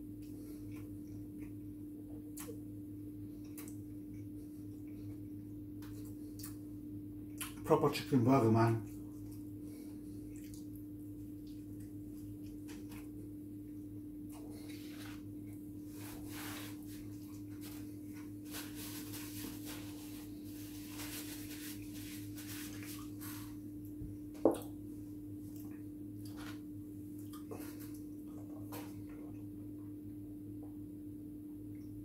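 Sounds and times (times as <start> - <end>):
steady low hum: 0.0 - 32.0
person chewing: 0.2 - 2.6, 3.4 - 7.6, 8.9 - 15.7, 25.4 - 29.4.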